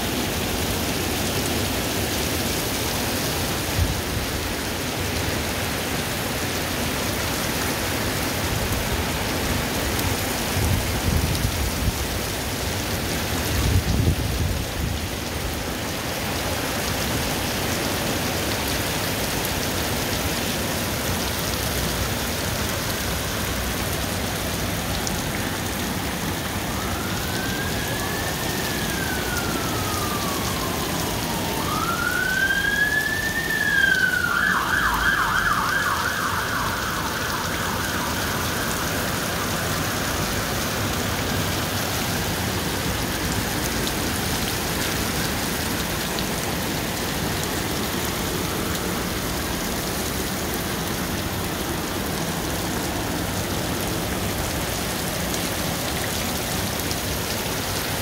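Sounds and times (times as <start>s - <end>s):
heavy rain splashing into water: 0.0s - 58.0s
emergency vehicle siren: 15.0s - 58.0s.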